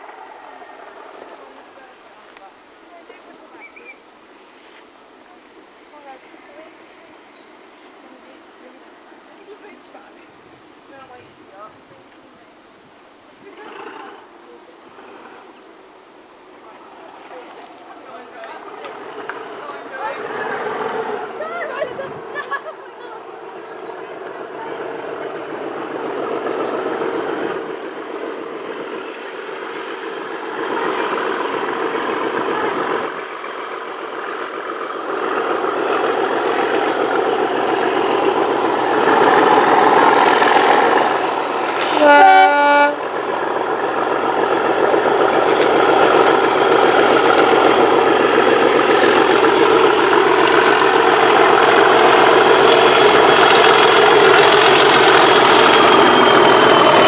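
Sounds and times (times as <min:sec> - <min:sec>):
diesel locomotive engine: 0:00.0 - 0:57.0
locomotive horn: 0:35.8 - 0:43.5, 0:52.6 - 0:57.0.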